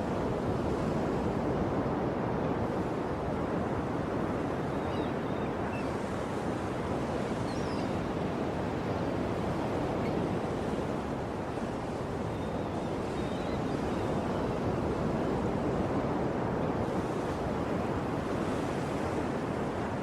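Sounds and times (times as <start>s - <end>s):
ocean surf washing on shore: 0.0s - 20.0s
faint high bird chirps: 7.5s - 8.0s.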